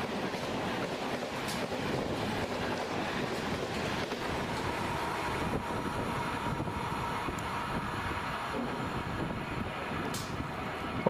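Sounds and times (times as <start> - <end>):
train coaches rolling on rails: 0.0 - 11.0.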